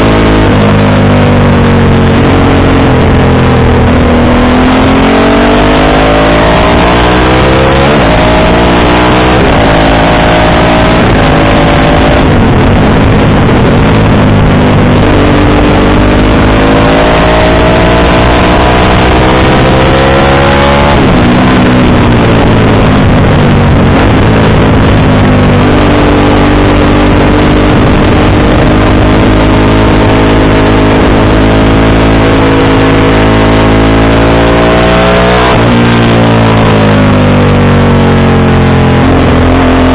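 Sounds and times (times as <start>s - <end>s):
motorcycle engine accelerating: 0.0s - 39.9s
wind and road rush: 0.0s - 39.9s.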